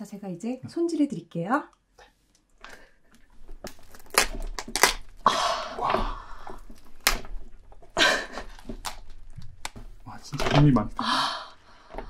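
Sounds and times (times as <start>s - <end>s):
lobster shell cracking: 3.5s - 9.8s.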